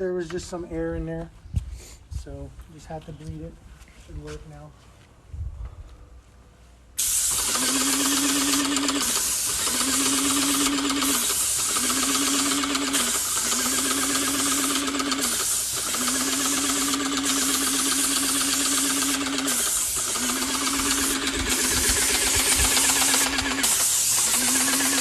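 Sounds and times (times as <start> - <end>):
paint spraying hiss: 7.0 - 25.0
small pump motor humming: 7.0 - 25.0.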